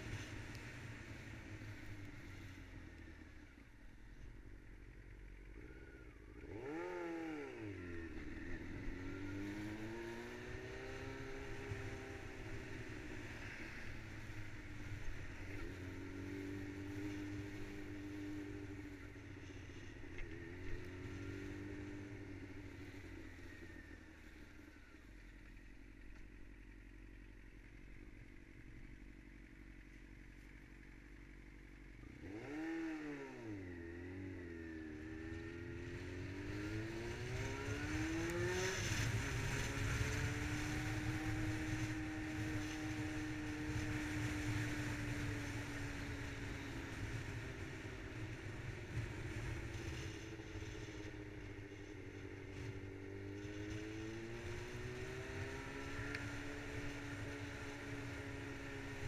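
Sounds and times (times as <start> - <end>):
motorcycle engine revving: 0.0 - 59.0
wind and road noise: 0.0 - 59.0.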